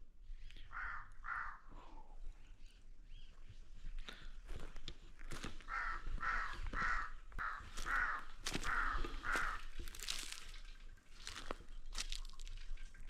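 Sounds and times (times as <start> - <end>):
crow cawing: 0.6 - 2.0, 5.3 - 10.5.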